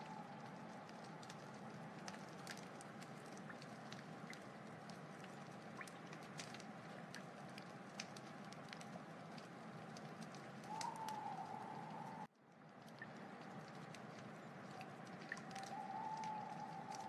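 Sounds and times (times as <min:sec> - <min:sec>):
wood fire crackling: 0:00.0 - 0:17.0
thin whistling tone: 0:10.7 - 0:12.3, 0:15.4 - 0:17.0.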